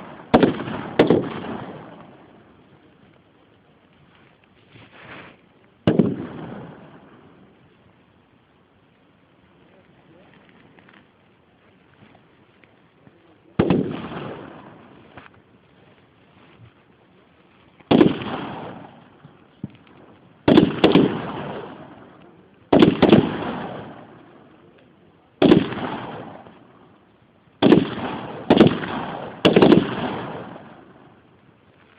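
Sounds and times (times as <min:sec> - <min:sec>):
rifle shots with rolling echo: 0:00.0 - 0:03.3, 0:05.8 - 0:08.3, 0:13.4 - 0:15.7, 0:17.8 - 0:31.6.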